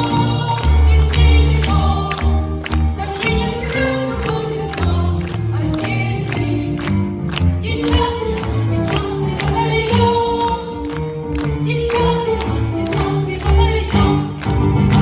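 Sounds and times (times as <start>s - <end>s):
children's choir singing: 0.0s - 15.0s.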